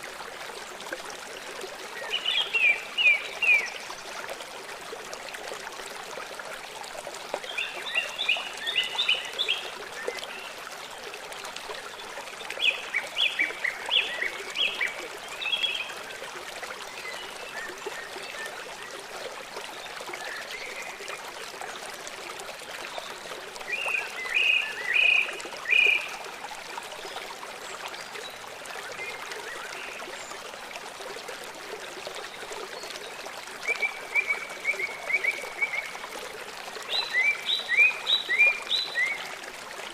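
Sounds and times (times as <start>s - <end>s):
running water rushing: 0.0s - 39.9s
small songbirds chirping: 1.9s - 4.2s, 36.8s - 39.4s.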